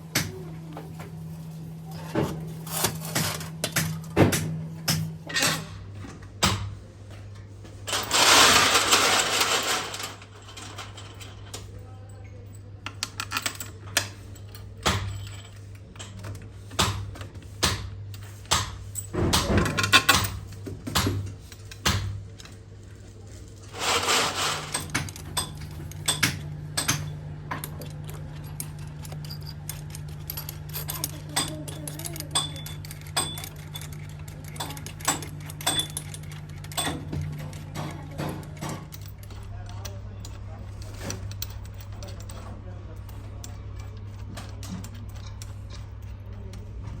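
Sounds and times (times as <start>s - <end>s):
steady low hum: 0.0s - 47.0s
metal parts clinking: 7.8s - 17.5s, 18.1s - 47.0s.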